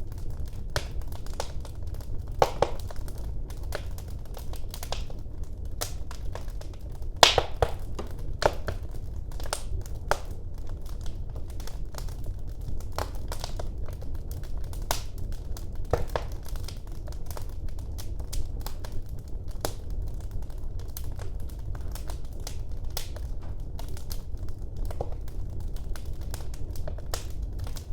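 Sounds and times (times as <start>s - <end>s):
fire crackles and pops: 0.0s - 27.9s
fire rumbling in fireplace: 0.0s - 27.9s.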